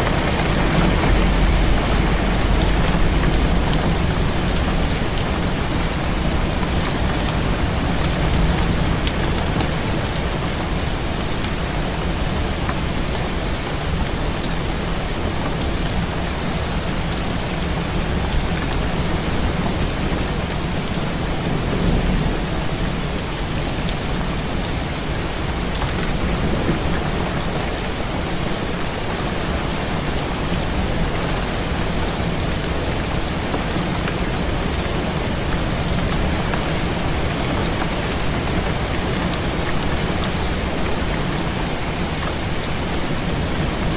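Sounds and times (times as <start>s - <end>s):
low rumble: 0.0s - 7.1s
heavy rain on a window: 0.0s - 43.9s.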